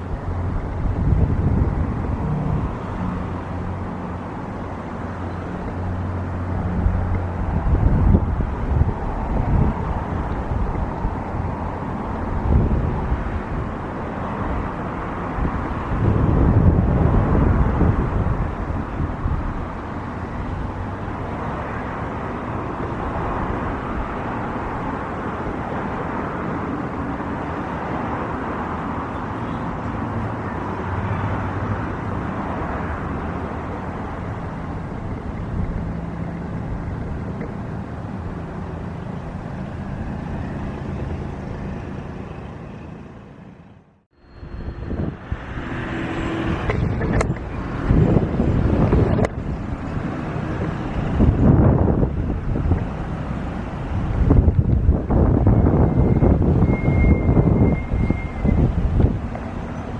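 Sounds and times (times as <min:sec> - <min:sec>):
wind buffeting microphone: 0:00.0 - 0:29.1, 0:44.5 - 0:59.9
distant engine rumble: 0:33.8 - 0:56.5.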